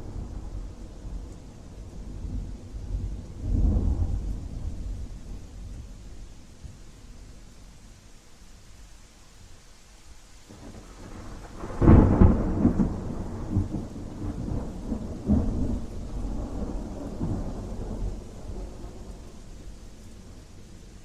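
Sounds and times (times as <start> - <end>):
steady rain: 0.0 - 21.0
thunderclap: 10.7 - 19.2.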